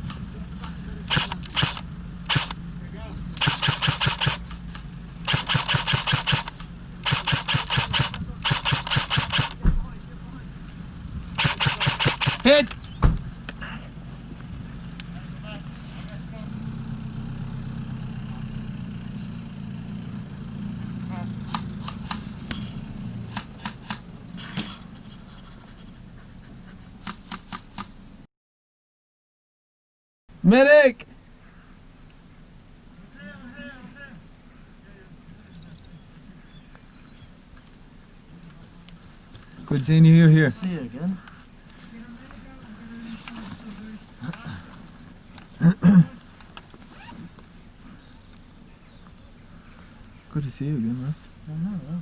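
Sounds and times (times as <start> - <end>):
vehicle engine running: 0.0 - 27.0, 32.5 - 48.7, 49.4 - 52.0
airsoft rifle firing bursts: 1.1 - 2.6, 3.4 - 4.4, 5.2 - 9.6, 11.4 - 12.6.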